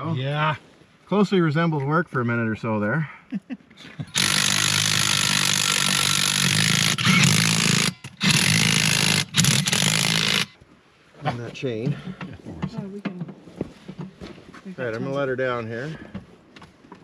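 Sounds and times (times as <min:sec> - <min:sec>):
power tool driving nuts: 0:04.0 - 0:10.6.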